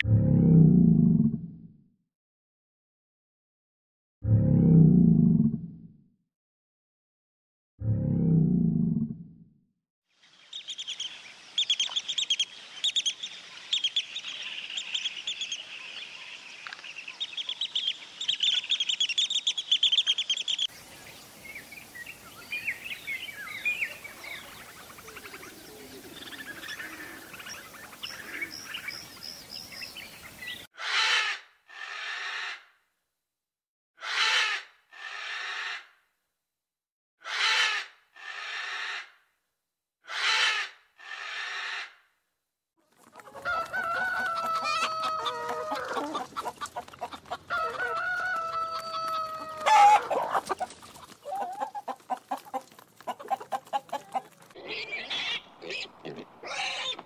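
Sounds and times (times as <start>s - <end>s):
small birds chirping: 10.2s - 30.7s, 48.8s - 57.0s
raspy bird calls: 22.4s - 32.6s, 48.8s - 57.0s.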